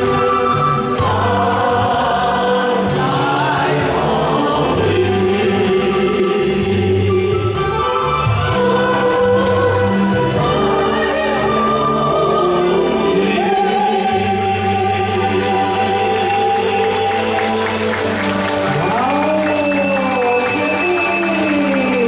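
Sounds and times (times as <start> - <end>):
backing accompaniment: 0.0 - 22.0
person singing: 8.4 - 22.0.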